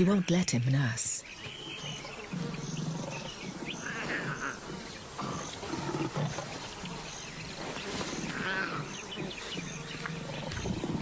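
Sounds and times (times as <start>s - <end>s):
insects chirping: 0.0s - 11.0s
lions growling: 1.7s - 11.0s.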